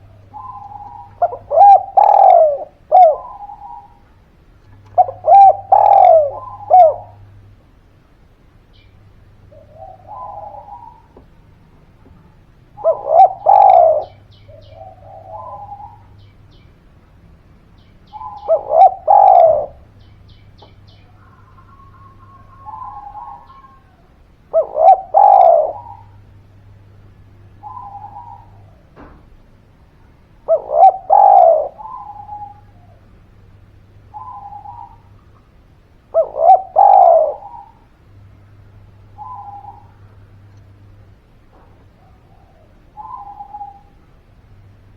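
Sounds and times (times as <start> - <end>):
dove cooing: 0.0 - 7.6, 8.8 - 16.5, 18.1 - 44.7.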